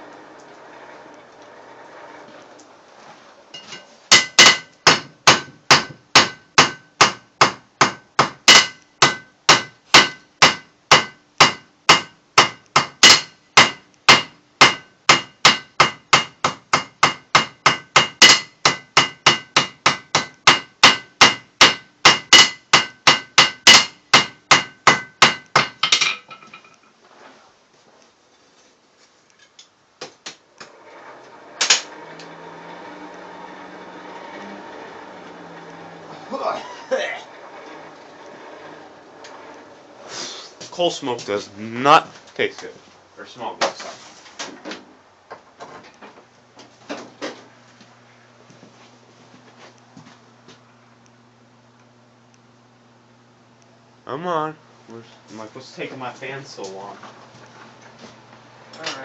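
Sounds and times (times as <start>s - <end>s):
hammer striking steel on anvil: 3.6s - 26.4s
sharp metal clank: 3.6s - 26.8s, 31.1s - 32.1s.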